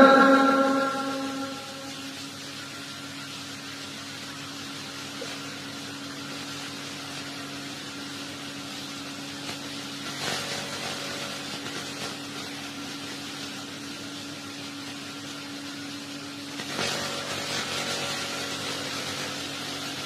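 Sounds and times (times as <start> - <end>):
steady low hum: 0.0 - 3.0
background hiss: 0.0 - 9.5.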